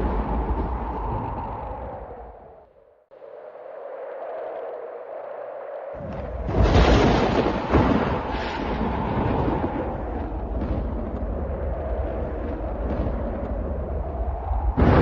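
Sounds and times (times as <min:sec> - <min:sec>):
rolling rumble of thunder: 0:00.0 - 0:02.5, 0:06.0 - 0:15.0
thunderclap: 0:00.0 - 0:02.5, 0:06.0 - 0:15.0.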